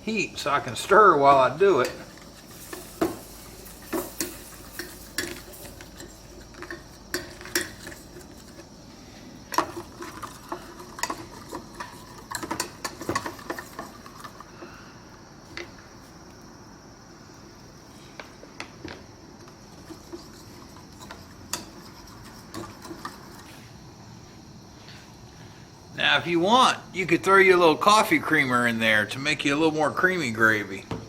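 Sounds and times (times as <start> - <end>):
utensil stirring gravy in a pan: 0.7 - 14.6, 19.4 - 23.6
utensil clinking and scraping pan: 1.8 - 8.7, 9.5 - 14.4, 19.7 - 23.6.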